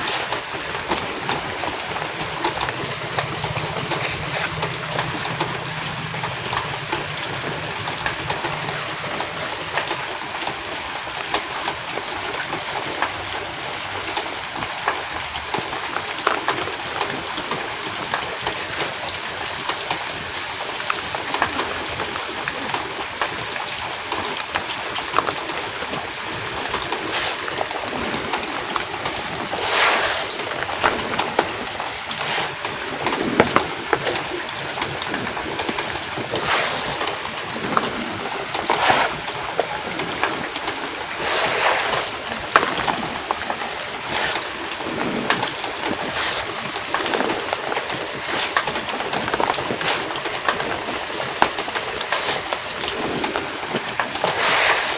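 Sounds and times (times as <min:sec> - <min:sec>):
chalk blocks crushed and crumbling: 0:00.0 - 0:09.4, 0:41.1 - 0:54.9
rain hiss: 0:00.0 - 0:54.9.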